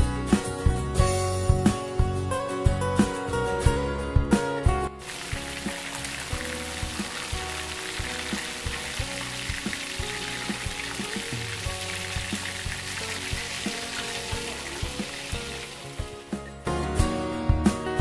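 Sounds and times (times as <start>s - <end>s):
background music with beat: 0.0s - 18.0s
chicken deep-frying in oil: 5.0s - 16.4s.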